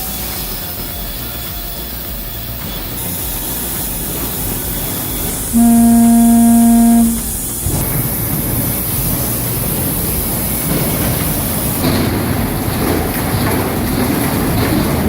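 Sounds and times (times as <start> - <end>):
loud horn-like tone: 5.6 - 7.6.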